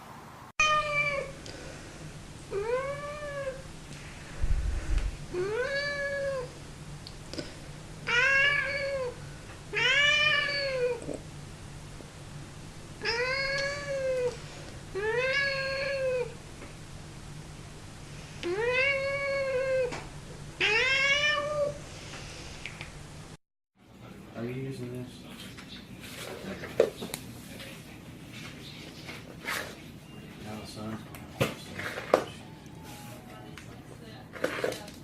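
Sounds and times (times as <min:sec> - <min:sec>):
cat meowing: 0:00.6 - 0:01.3, 0:08.0 - 0:11.0, 0:13.0 - 0:14.4, 0:15.0 - 0:16.4, 0:20.6 - 0:21.8.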